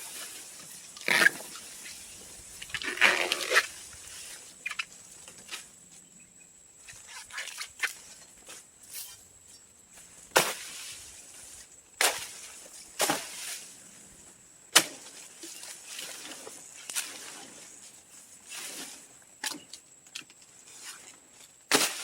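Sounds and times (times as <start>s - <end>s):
crackling and rustling: 0.0s - 6.0s.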